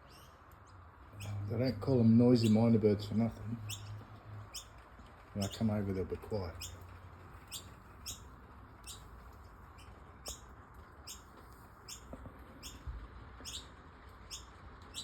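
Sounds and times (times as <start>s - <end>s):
bird chicks calling: 3.6s - 4.8s, 6.5s - 15.0s.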